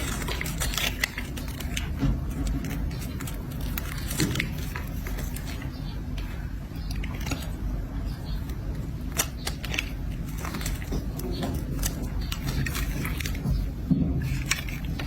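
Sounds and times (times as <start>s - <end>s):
blade scraping soap: 0.0s - 6.0s.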